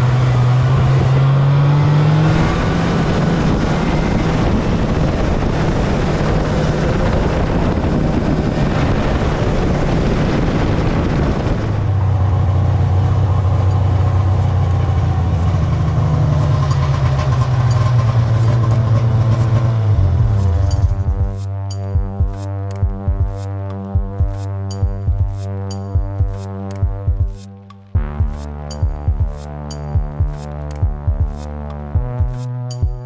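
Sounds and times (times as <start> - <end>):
vehicle engine hum: 0.0 - 21.7
road and wind noise: 0.0 - 33.0.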